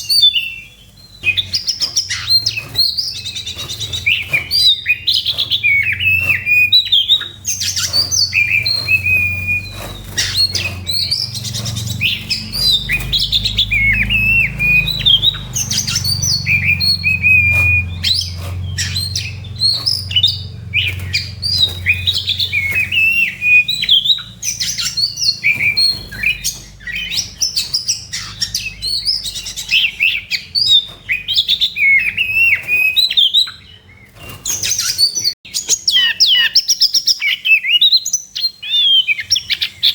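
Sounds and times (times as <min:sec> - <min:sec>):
bird singing whistles: 0:00.0 - 0:39.9.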